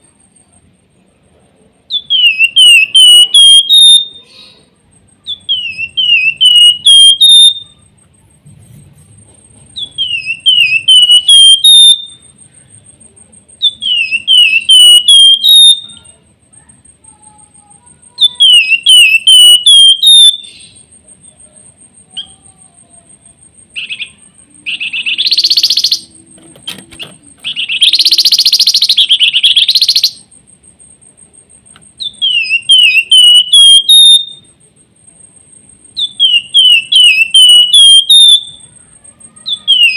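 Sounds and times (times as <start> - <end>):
thin steady high tone: 0.0 - 39.9
songbird whistling: 1.9 - 7.8, 9.7 - 12.4, 13.6 - 16.2, 18.2 - 20.9, 23.8 - 30.3, 32.0 - 34.5, 36.0 - 38.7, 39.4 - 39.9
harsh buzzy bird chatters: 23.7 - 30.3.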